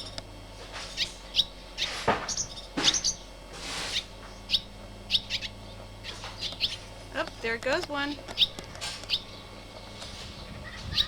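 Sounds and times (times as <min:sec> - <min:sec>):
small birds chirping: 0:00.0 - 0:11.0
whooshing rustles: 0:03.5 - 0:04.2.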